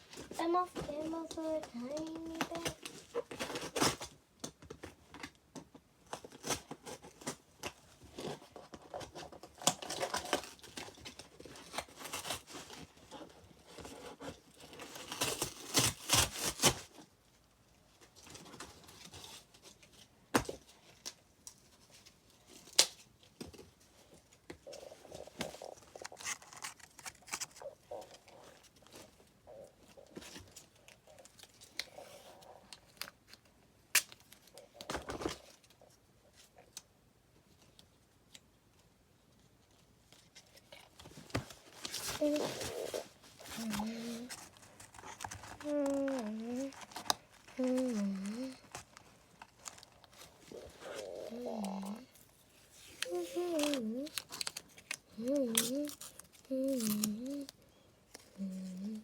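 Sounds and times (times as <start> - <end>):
cardboard rustling: 0.0 - 4.2, 18.0 - 33.4, 39.5 - 59.0
tape tearing: 13.7 - 17.0, 24.6 - 29.1, 40.2 - 59.0.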